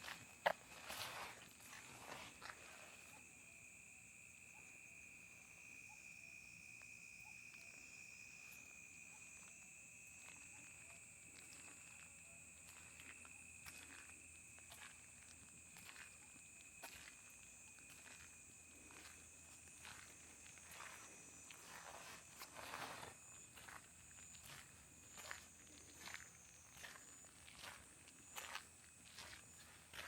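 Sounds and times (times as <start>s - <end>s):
soft footsteps: 0.0s - 3.2s, 10.2s - 30.0s
crickets and insects trilling: 0.0s - 30.0s.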